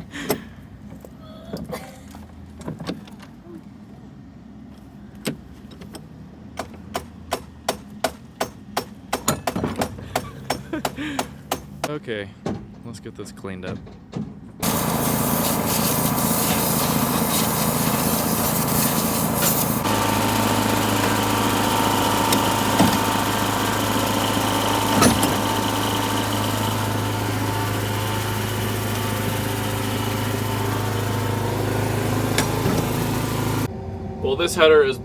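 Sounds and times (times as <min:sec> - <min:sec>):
gas-engine blower running: 0:14.6 - 0:34.7.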